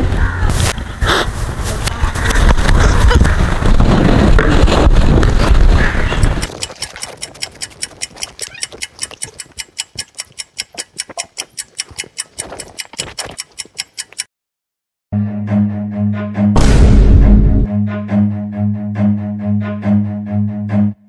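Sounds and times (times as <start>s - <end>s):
rapid ticking: 6.2s - 14.3s.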